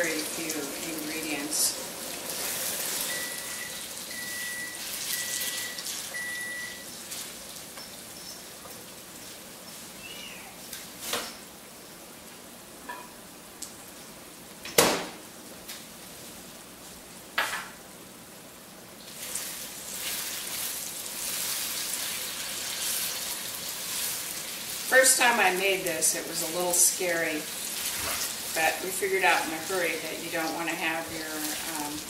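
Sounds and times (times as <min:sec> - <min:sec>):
plantains sizzling in a wok: 0:00.0 - 0:11.2, 0:19.0 - 0:32.0
kitchen knocks and clunks: 0:14.7 - 0:15.2.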